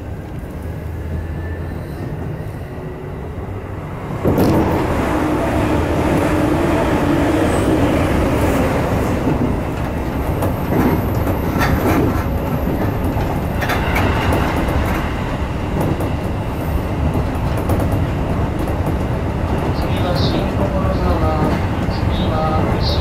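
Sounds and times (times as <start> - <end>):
train wheels rumbling on rails: 0.0 - 23.0
clacks over rail joints: 8.8 - 23.0.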